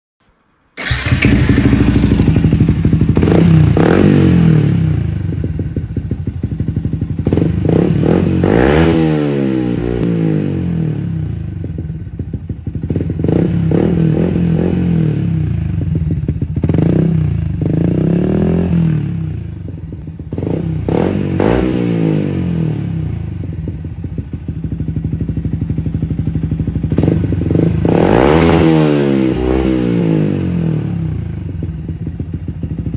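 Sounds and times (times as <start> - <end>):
motorcycle engine revving: 0.8 - 32.9.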